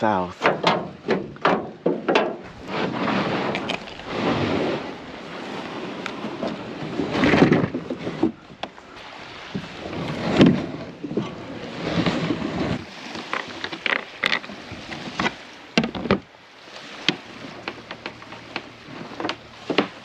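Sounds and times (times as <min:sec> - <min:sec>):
wind buffeting microphone: 0:02.4 - 0:13.1.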